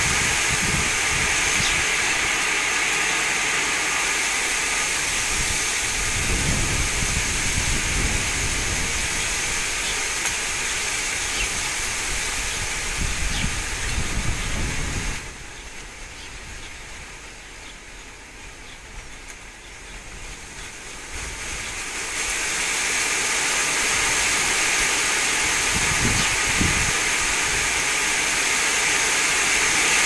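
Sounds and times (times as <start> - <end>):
strong wind gusting over microphone: 0.0 - 2.4, 4.4 - 15.6, 23.8 - 28.4.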